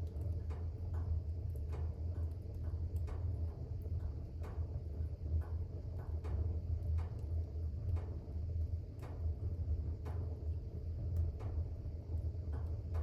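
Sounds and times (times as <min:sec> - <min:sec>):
fireplace fire crackling: 0:00.0 - 0:13.0.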